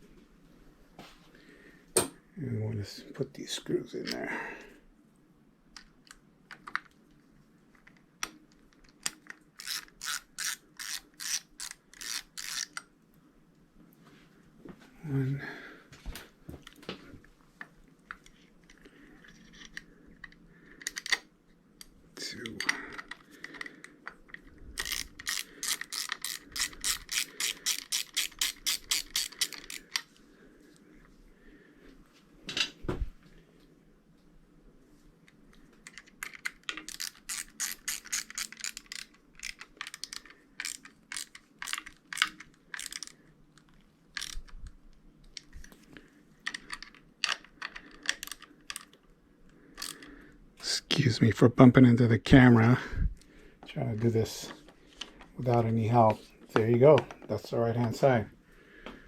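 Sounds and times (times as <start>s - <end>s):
ratchet tool clicking: 9.6s - 12.8s, 24.8s - 30.0s, 36.8s - 43.1s.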